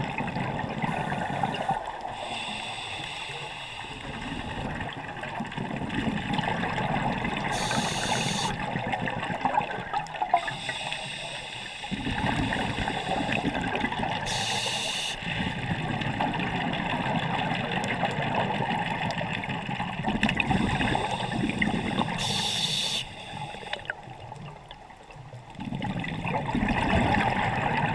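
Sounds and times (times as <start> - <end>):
water bubbling and gurgling: 0.0 - 27.9
short hiss: 7.6 - 8.5, 14.3 - 15.3, 21.0 - 23.8.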